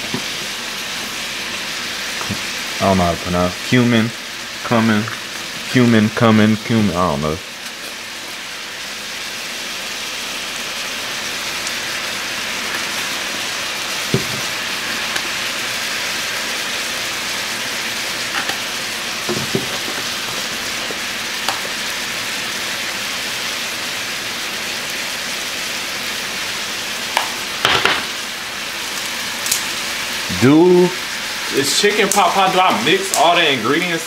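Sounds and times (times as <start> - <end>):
chicken sizzling in a frying pan: 0.0 - 34.0.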